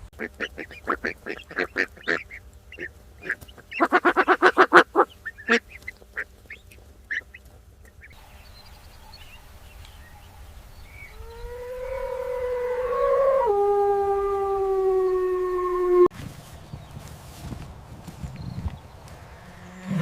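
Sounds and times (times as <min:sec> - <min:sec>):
waterfowl honking quacks: 0:00.0 - 0:08.2
dog howling: 0:11.2 - 0:16.1.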